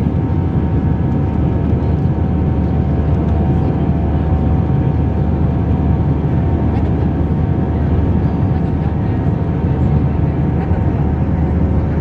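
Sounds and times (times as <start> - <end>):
jet engine roar in cabin: 0.0 - 12.0.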